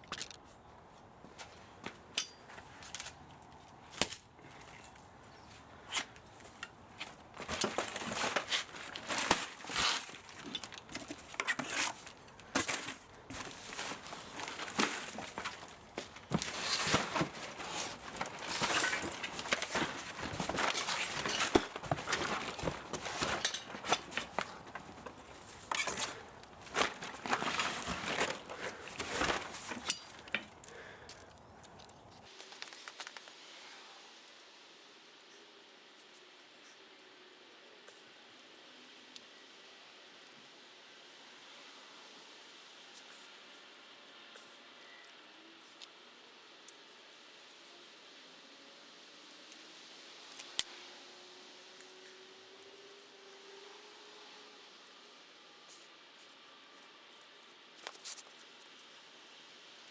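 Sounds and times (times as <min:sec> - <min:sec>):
crinkling: 0:00.0 - 0:48.2, 0:54.6 - 0:59.9
scraping: 0:05.8 - 0:31.0.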